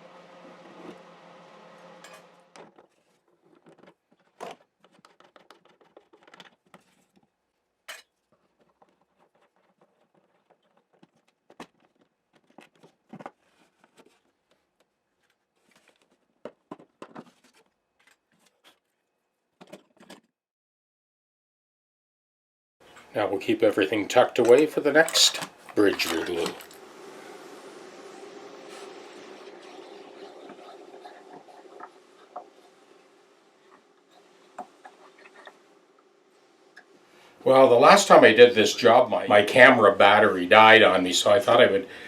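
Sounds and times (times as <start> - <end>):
steady hum: 0.0 - 2.6, 22.9 - 41.9
small tools clattering on workbench: 24.4 - 26.8.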